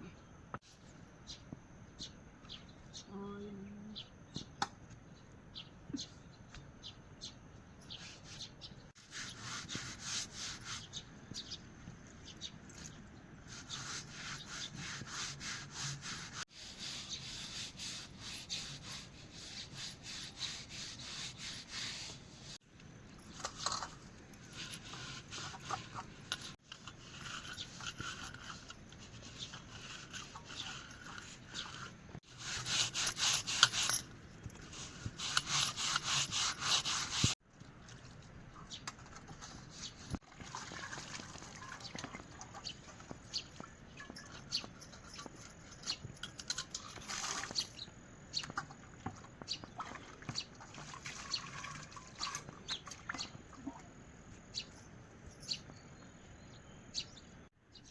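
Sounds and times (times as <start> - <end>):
rapid scraping strokes: 13.5 - 22.6, 23.3 - 37.4.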